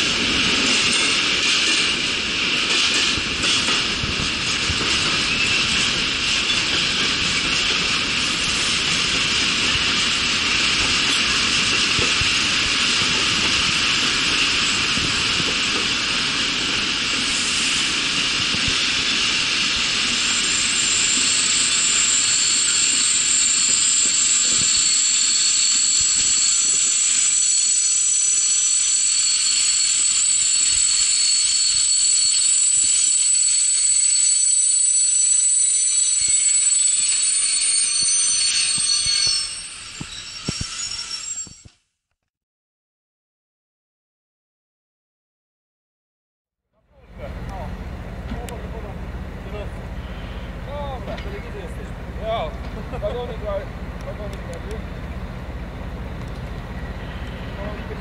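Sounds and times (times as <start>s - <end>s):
train rolling hiss: 0.0s - 33.8s, 46.9s - 58.0s
high squealing tones: 20.1s - 41.7s.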